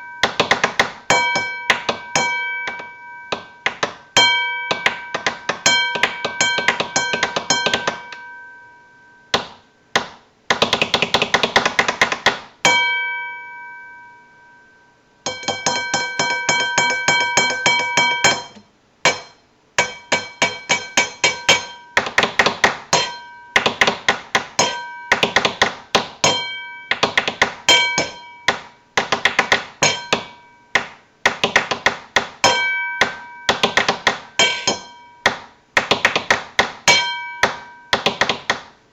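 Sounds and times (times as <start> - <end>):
clattering bell-like ringing strikes: 0.0 - 9.4, 12.6 - 22.0, 22.9 - 23.7, 24.6 - 25.6, 26.2 - 27.1, 27.7 - 28.9, 29.8 - 30.8, 32.4 - 35.3, 36.9 - 38.0.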